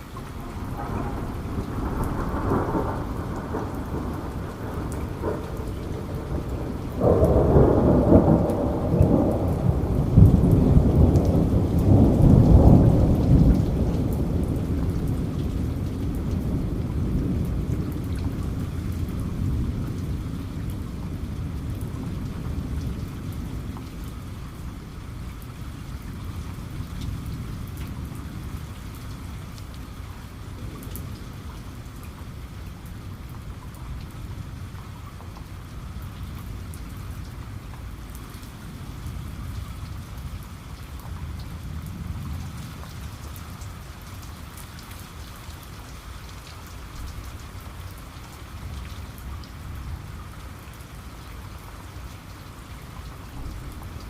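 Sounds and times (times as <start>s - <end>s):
steady rain: 0.0s - 54.0s
thunder rumbling: 0.1s - 35.0s.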